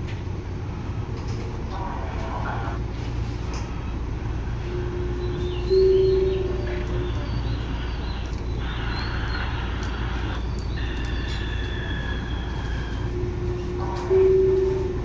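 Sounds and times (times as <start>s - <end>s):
train equipment hum: 0.0s - 15.0s
high bird-like chirps: 5.1s - 13.2s.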